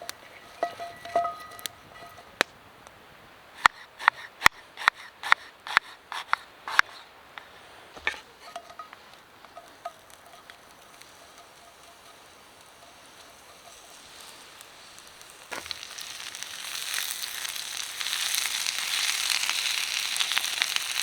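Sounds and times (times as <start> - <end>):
metal clinks with ringing: 0.6 - 2.3.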